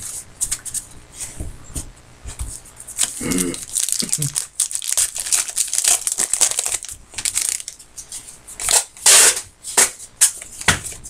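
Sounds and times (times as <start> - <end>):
wrapper crinkling and tearing: 3.0 - 7.8.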